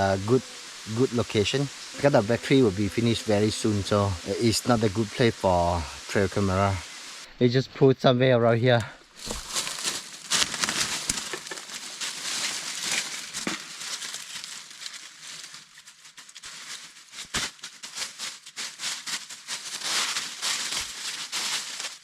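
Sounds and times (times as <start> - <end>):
dry leaves rustling and crackling: 9.1 - 22.0.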